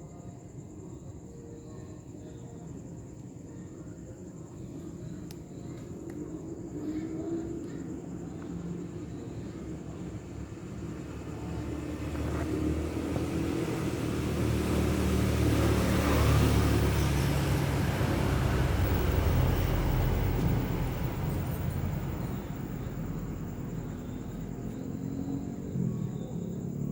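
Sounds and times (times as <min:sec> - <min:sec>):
vehicle passing by: 0:09.7 - 0:26.9.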